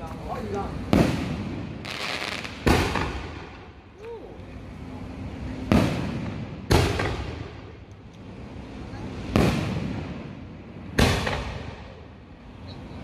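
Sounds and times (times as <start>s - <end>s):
firework bangs: 0.5s - 3.8s, 5.6s - 7.8s, 8.5s - 12.1s.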